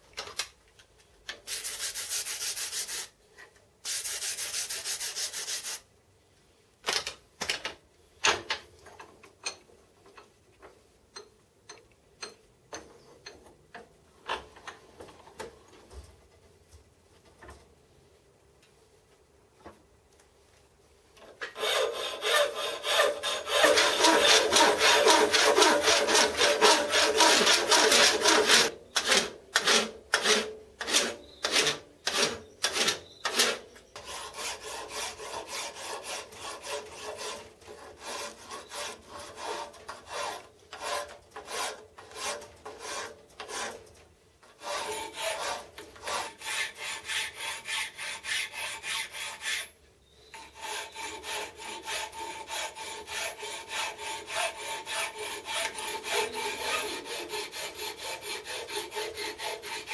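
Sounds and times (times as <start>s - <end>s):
file rasping on metal: 21.6s - 43.8s, 44.6s - 49.8s, 50.4s - 59.9s.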